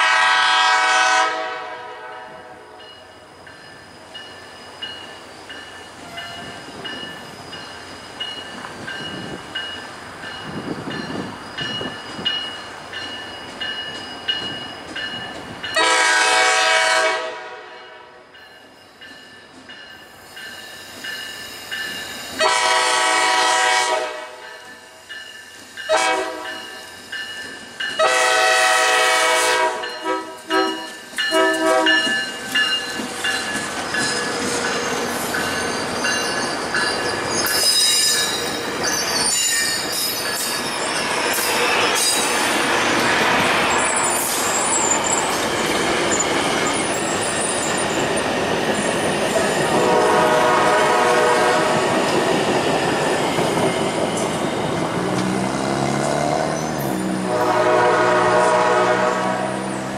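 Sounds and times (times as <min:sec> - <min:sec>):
train horn blasts: 0:00.0 - 0:02.9, 0:15.8 - 0:18.3, 0:22.4 - 0:24.6, 0:25.9 - 0:26.7, 0:28.0 - 0:32.2, 0:49.7 - 0:51.8, 0:57.0 - 0:59.9
train wheels rumbling on rails: 0:00.0 - 0:17.5, 0:18.2 - 0:59.9
high-pitched wheel squeal: 0:33.9 - 0:42.4.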